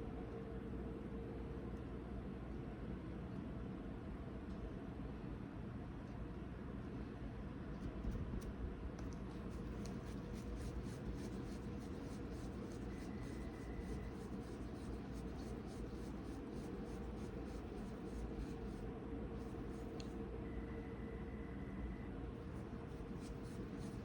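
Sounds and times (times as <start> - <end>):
steady background hum: 0.0 - 24.0
hands rubbing dough on surface: 9.3 - 20.2, 22.4 - 24.0.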